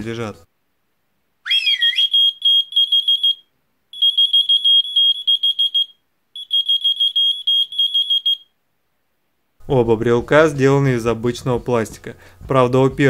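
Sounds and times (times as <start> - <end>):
person whistling: 1.5 - 3.4, 4.0 - 8.5
key finder beeping: 4.0 - 8.4.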